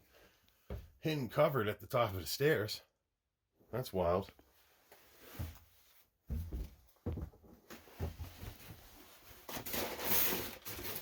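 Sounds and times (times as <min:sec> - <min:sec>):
footsteps on wooden floorboards: 0:00.6 - 0:01.0, 0:06.3 - 0:08.8.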